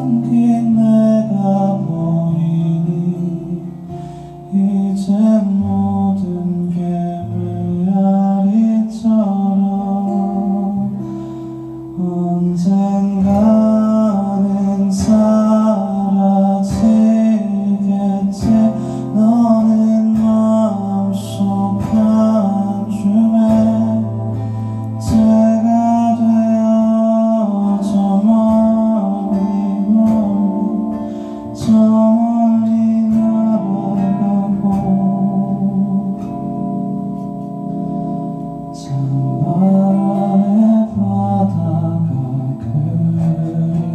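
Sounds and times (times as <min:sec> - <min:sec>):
live band playing slow song: 0:09.0 - 0:43.9.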